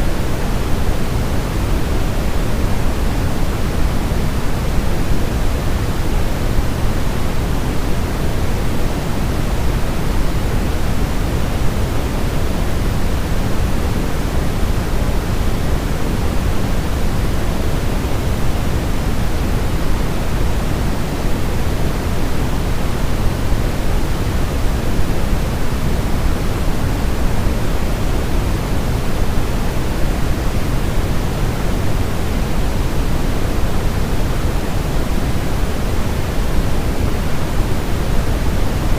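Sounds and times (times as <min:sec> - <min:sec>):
deep white noise hiss: 0:00.0 - 0:38.9.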